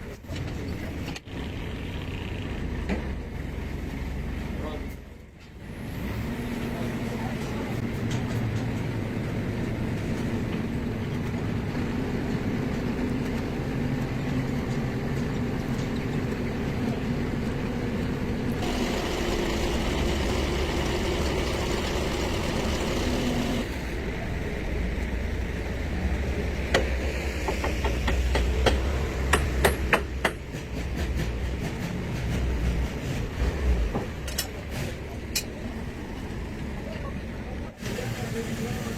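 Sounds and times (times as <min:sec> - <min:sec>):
engine running: 0:05.5 - 0:29.7
sharp metallic knocks: 0:27.5 - 0:30.8.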